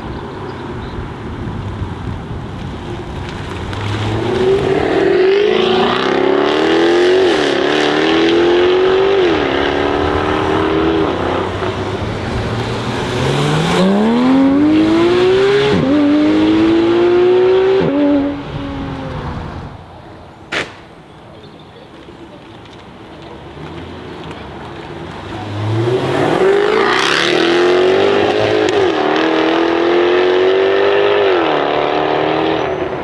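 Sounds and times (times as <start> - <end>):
car engine accelerating: 2.6 - 19.9, 23.4 - 33.0
exhaust pop: 20.5 - 21.1.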